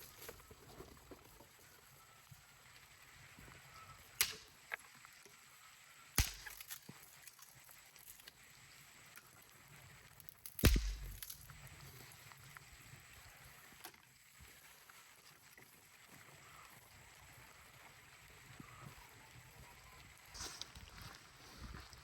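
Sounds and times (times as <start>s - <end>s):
sharp knocks of hard objects: 4.2s - 4.5s, 6.2s - 6.6s, 10.6s - 11.4s.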